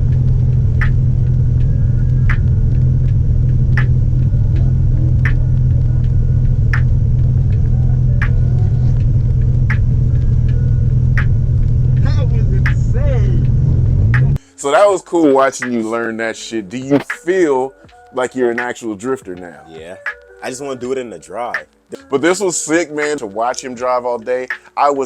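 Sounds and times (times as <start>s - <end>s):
car cabin rumble: 0.0s - 14.4s
short sharp sound: 6.4s - 14.4s.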